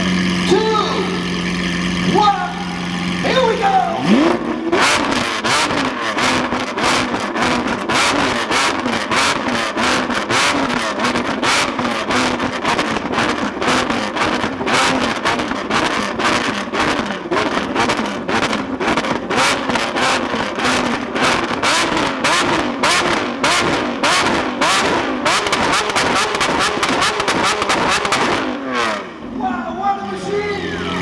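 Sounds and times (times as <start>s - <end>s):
car engine revving: 0.0s - 31.0s
exhaust pops and bangs: 4.0s - 28.6s.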